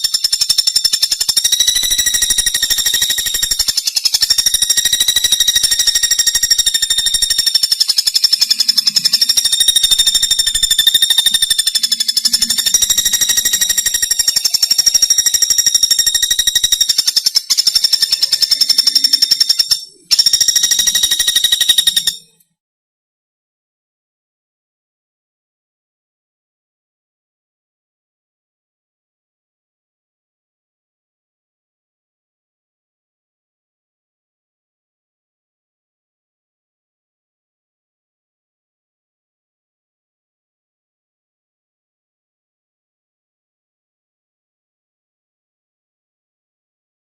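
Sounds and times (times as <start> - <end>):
woodpecker rattling trill: 0.0 - 22.4.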